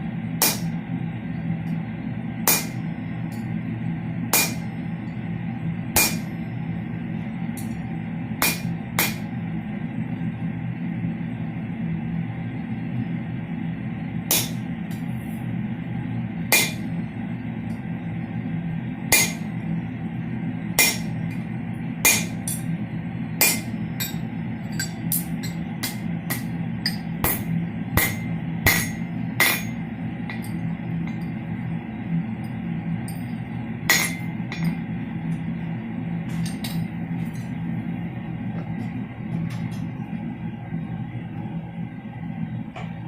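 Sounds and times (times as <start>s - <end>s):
hammer striking steel: 0.4s - 0.8s, 2.4s - 3.5s, 4.3s - 4.7s, 6.0s - 6.4s, 8.4s - 9.3s, 14.3s - 15.0s, 16.5s - 16.9s, 19.1s - 19.5s, 20.8s - 21.4s, 22.0s - 22.7s, 23.4s - 31.3s, 33.1s - 34.8s, 36.3s - 37.5s.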